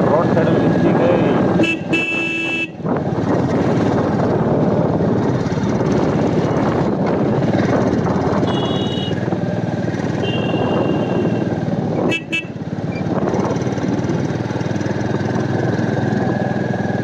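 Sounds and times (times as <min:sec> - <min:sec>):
motorcycle engine running: 0:00.0 - 0:17.0
wind rushing over microphone: 0:00.0 - 0:17.0
horn beeps: 0:01.6 - 0:02.8, 0:08.4 - 0:09.2, 0:10.2 - 0:11.5.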